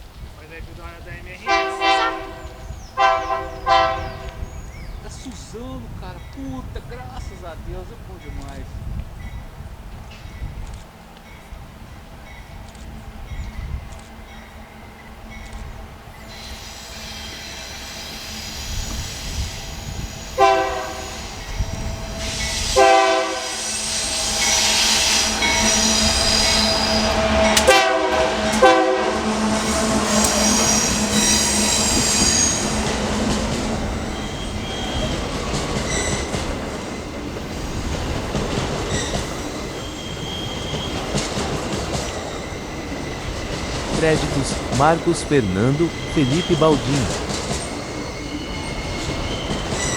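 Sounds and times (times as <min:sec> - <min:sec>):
locomotive horn blasts: 0:01.4 - 0:04.5, 0:20.4 - 0:23.7, 0:26.5 - 0:31.6, 0:44.1 - 0:47.2
train wheels squealing: 0:13.3 - 0:27.8, 0:29.6 - 0:44.8, 0:47.0 - 0:49.9.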